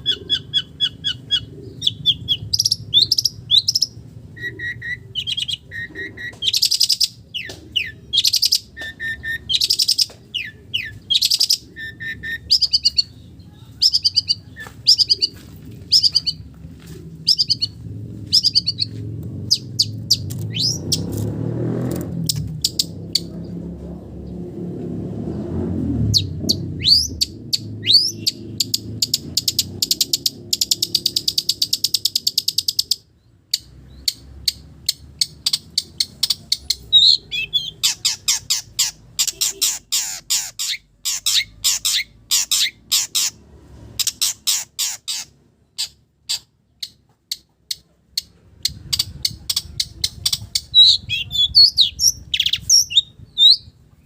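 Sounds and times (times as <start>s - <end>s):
bird singing chattering song: 0.0s - 16.5s, 17.1s - 21.2s, 22.2s - 23.6s, 26.1s - 43.4s, 44.0s - 54.0s
low rumble: 14.3s - 30.6s, 48.4s - 54.0s.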